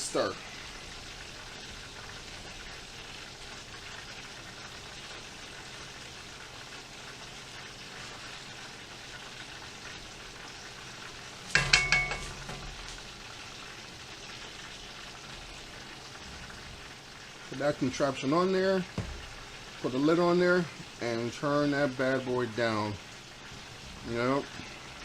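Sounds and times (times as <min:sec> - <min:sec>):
chicken sizzling in oil: 0:00.0 - 0:25.0
metal cookware clattering: 0:11.5 - 0:13.2, 0:19.0 - 0:19.6.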